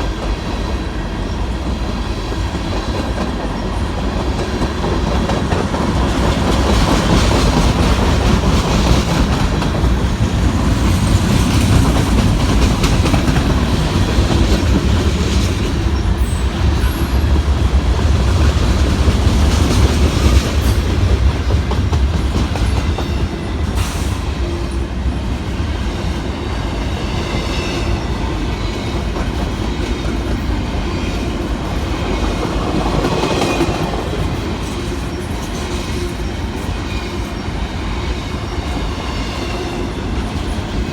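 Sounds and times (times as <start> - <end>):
train low rumble: 0.0 - 40.9
steel wheels clacking over rail joints: 2.7 - 24.2.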